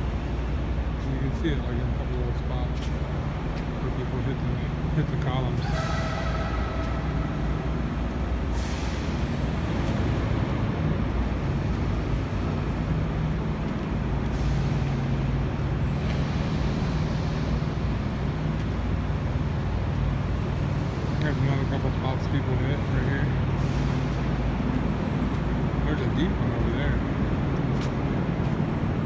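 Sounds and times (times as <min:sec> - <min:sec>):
diesel truck engines idling: 0:00.0 - 0:29.0
air brake hisses: 0:05.6 - 0:09.5.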